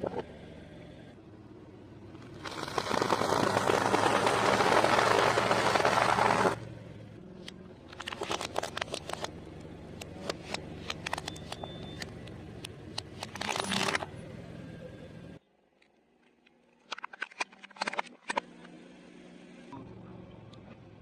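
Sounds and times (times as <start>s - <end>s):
dense crackling and crinkling: 2.2s - 6.6s, 7.9s - 9.3s.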